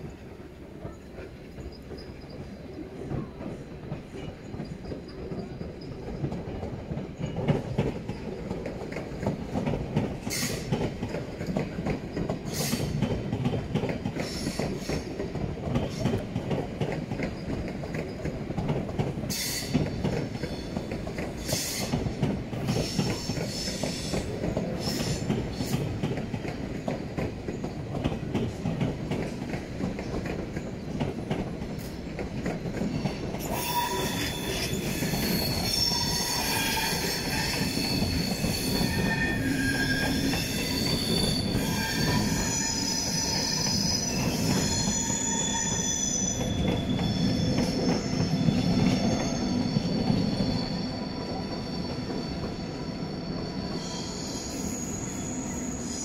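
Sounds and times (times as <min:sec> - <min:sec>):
train wheels rumbling on rails: 0:00.0 - 0:56.0
high wheel squeal: 0:33.4 - 0:56.0.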